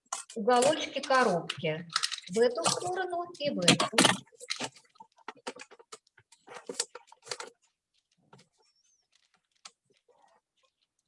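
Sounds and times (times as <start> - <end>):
wrapping paper crinkling: 4.3 - 11.0.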